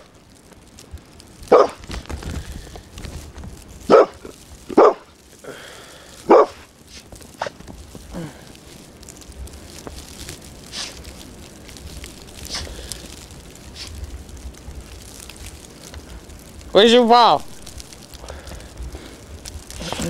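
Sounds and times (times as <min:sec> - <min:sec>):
dog barking: 0:01.5 - 0:01.8, 0:03.9 - 0:05.1, 0:06.3 - 0:06.7.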